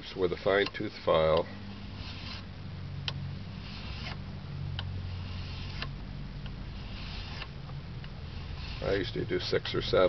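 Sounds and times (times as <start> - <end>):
low steady hum: 0.0 - 10.0
metal file rasping on blade: 1.8 - 2.5, 3.5 - 4.2, 5.0 - 5.9, 6.7 - 7.5, 8.3 - 9.1.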